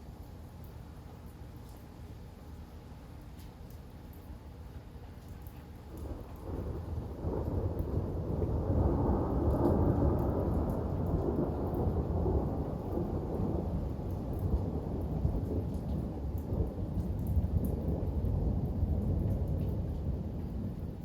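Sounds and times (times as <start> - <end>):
rain falling: 0.0 - 21.0
rolling thunder: 6.0 - 21.0.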